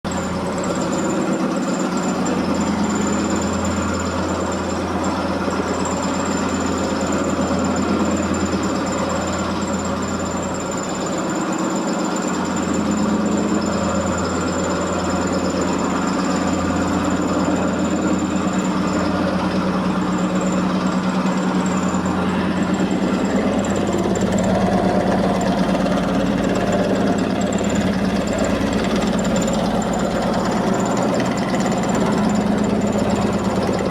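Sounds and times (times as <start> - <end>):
washing machine spinning: 0.0 - 33.9
thin high whine: 0.1 - 33.9.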